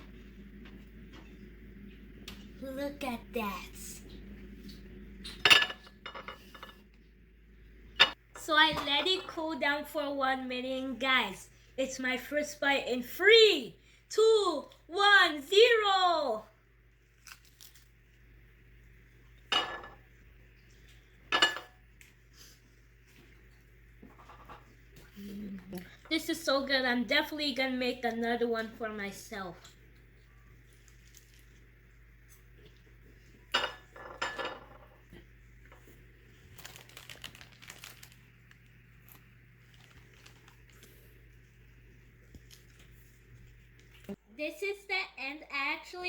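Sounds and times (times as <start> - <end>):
dishes clinking: 5.2 - 6.8, 8.0 - 8.2, 19.5 - 20.0, 21.3 - 21.8, 33.5 - 35.0.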